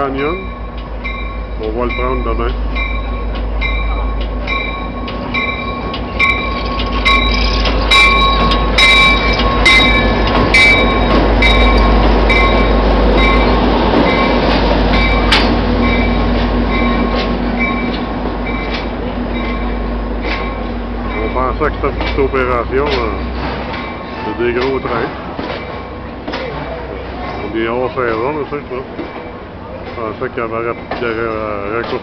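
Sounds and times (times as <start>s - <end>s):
locomotive bell ringing: 0.0s - 32.0s.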